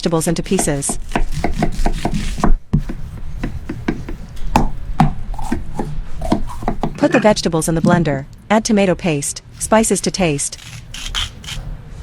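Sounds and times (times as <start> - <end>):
knife chopping on cutting board: 0.2 - 7.0.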